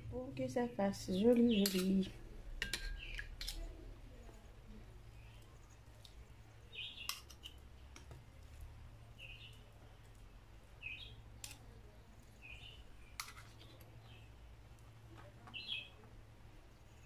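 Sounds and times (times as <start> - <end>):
birds chirping: 0.9 - 2.1, 6.6 - 7.5, 9.2 - 9.7, 10.8 - 11.2, 12.4 - 13.2, 15.4 - 16.0
spoons scraping batter: 1.1 - 4.5, 5.2 - 8.7, 11.4 - 14.2.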